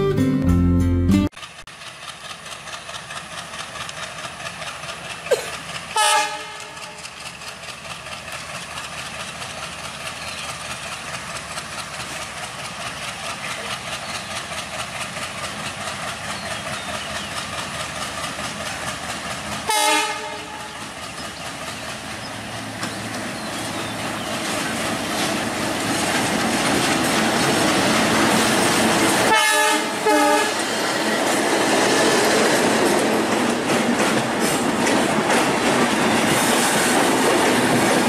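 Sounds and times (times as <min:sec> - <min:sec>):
train running on rails: 0:00.0 - 0:38.0
train horn blasts: 0:06.0 - 0:07.0, 0:19.7 - 0:20.8, 0:29.3 - 0:30.6.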